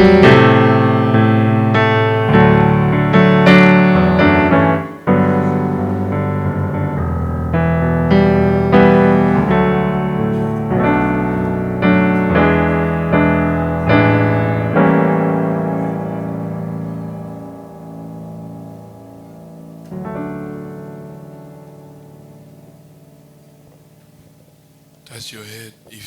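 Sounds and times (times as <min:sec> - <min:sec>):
piano keyboard slow chords: 0:00.0 - 0:26.0.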